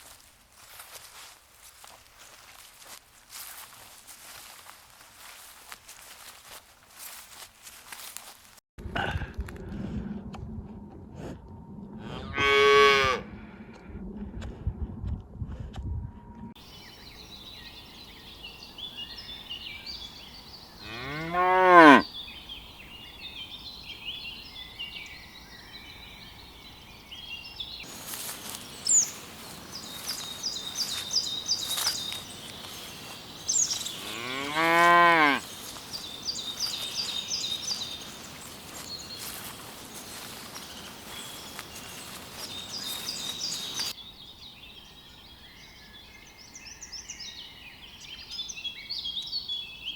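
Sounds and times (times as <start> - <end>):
cow mooing: 12.0 - 13.3, 20.8 - 22.0, 34.0 - 35.4.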